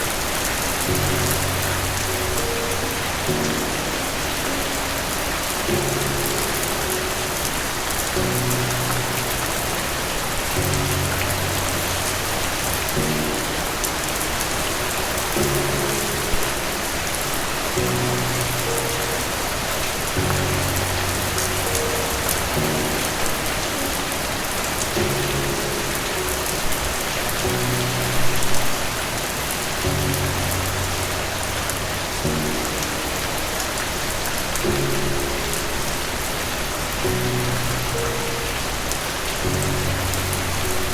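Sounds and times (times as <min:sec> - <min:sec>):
soft slow music chords: 0:00.0 - 0:40.9
steady rain: 0:00.0 - 0:40.9.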